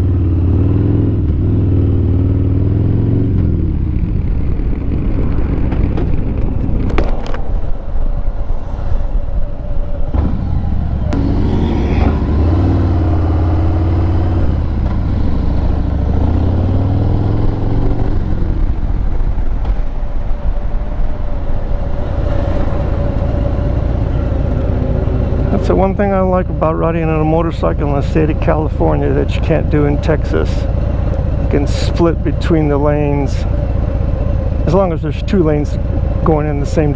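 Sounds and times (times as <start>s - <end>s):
motorcycle engine rumbling: 0.0s - 36.9s
wind noise on microphone: 3.6s - 12.4s, 18.3s - 25.6s.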